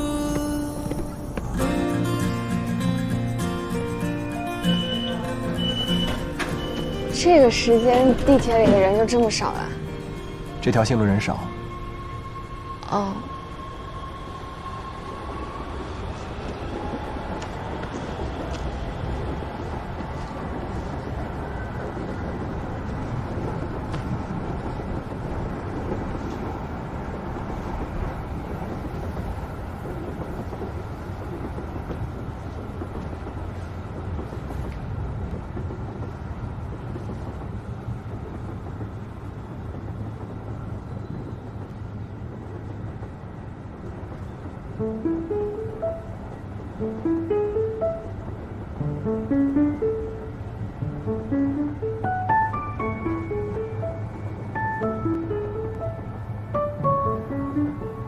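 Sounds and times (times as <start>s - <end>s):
subway train rumbling: 0.0s - 58.0s.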